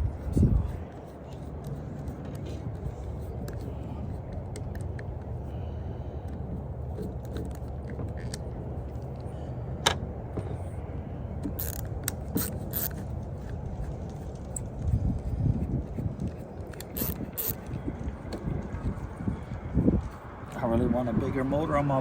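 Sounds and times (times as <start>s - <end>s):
steady low rumble: 0.0s - 22.0s
metal parts and tools clicking: 11.6s - 13.0s, 16.7s - 17.6s.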